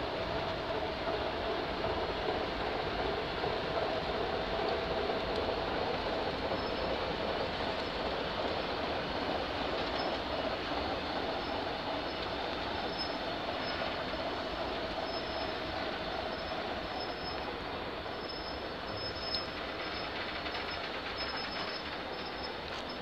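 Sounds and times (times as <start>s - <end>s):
train rolling rumble: 0.0s - 23.0s
brake and wheel squeal: 6.5s - 7.0s, 9.8s - 10.4s, 11.3s - 23.0s.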